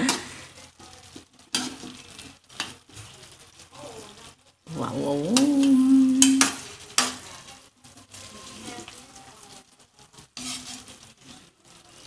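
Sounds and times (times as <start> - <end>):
sauce sizzling in a pan: 0.0 - 12.0
spoon stirring: 10.3 - 11.5.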